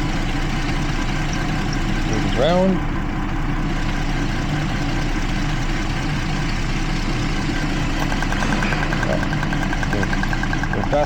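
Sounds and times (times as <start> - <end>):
engine idling rough: 0.0 - 11.0
fast regular ticking: 4.4 - 11.0.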